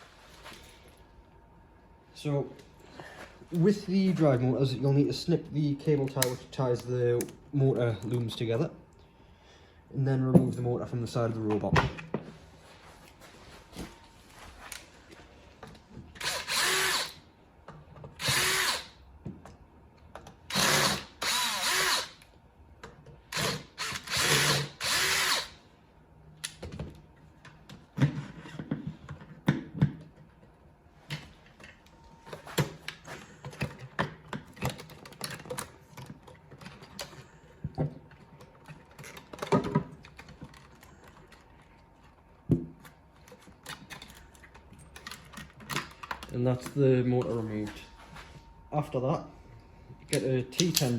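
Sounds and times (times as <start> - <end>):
power drill driving screws: 16.2 - 17.2, 18.2 - 19.0, 20.5 - 22.2, 23.3 - 25.6.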